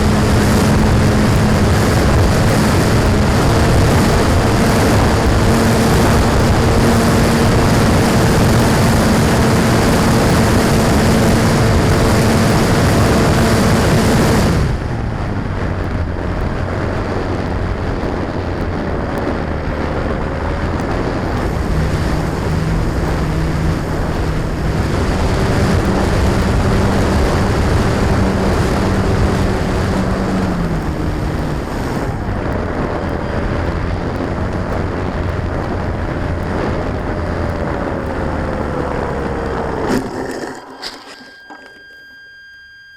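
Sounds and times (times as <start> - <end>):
model airplane motor buzzing: 0.0 - 14.9
low rumble: 0.0 - 42.4.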